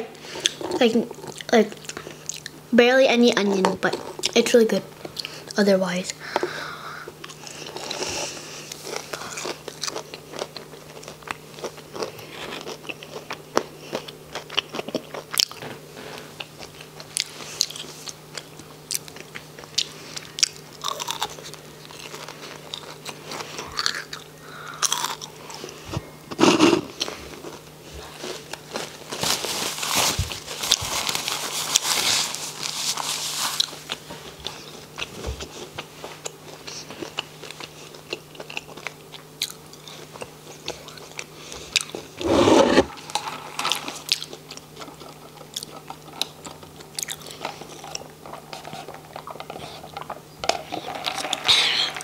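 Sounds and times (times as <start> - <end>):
crunchy chewing: 7.1 - 15.6, 16.2 - 52.0
paper wrapper rustling: 28.3 - 33.8.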